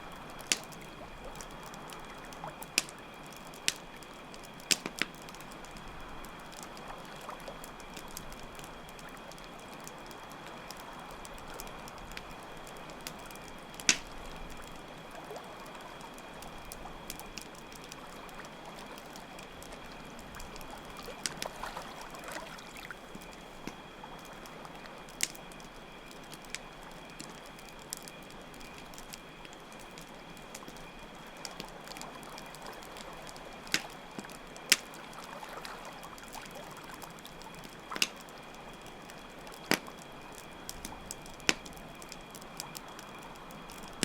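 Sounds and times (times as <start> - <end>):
campfire crackling and popping: 0.0 - 44.0
crickets chirping: 0.0 - 44.0
flowing water: 17.7 - 25.0, 31.4 - 39.8.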